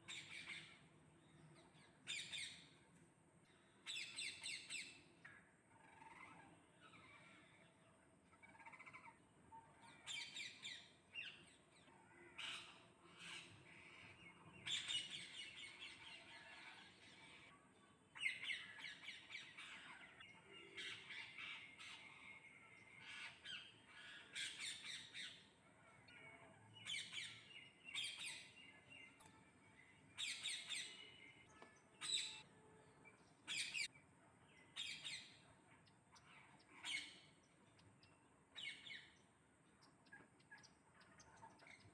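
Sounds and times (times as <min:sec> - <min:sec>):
parrots squawking: 0:08.4 - 0:09.2.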